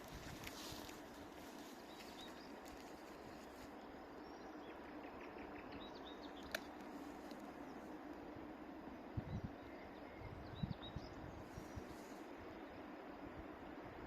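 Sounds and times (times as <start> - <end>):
low steady hum: 0.0 - 14.0
faint bird chirps: 1.6 - 6.7.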